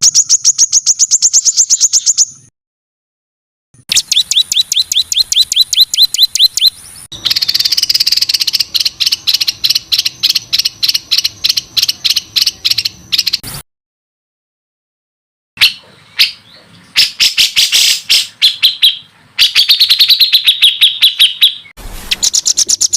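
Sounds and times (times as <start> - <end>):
songbird whistled notes: 0.0 - 2.5, 3.9 - 13.4, 15.6 - 22.9
songbird harsh rattling strokes: 21.8 - 22.9.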